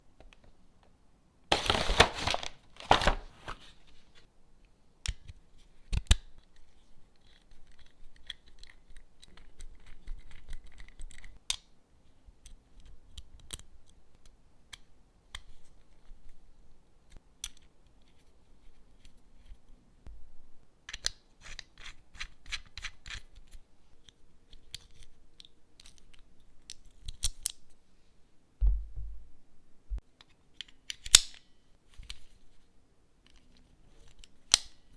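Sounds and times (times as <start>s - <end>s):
packaging tearing: 1.5s - 3.7s
dull thump: 28.6s - 29.4s.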